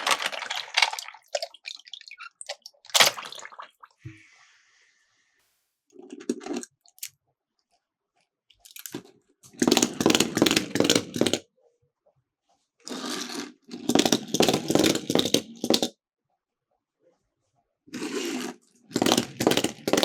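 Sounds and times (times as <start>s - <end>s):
toy cars rattling down plastic slope: 0.0s - 1.5s, 9.6s - 11.4s, 12.9s - 15.9s, 18.0s - 20.0s.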